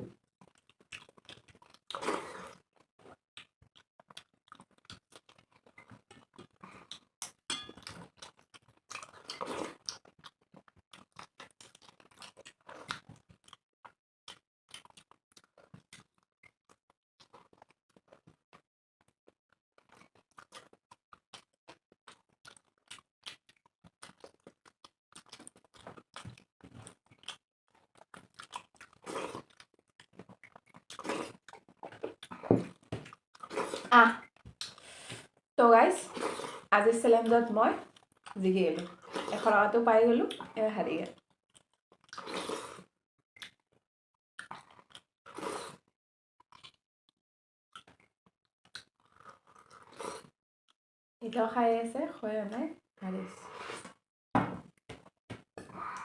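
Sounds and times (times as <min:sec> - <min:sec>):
people chewing food: 0:00.0 - 0:43.8, 0:44.4 - 0:46.8, 0:47.7 - 0:50.8, 0:54.6 - 0:56.0.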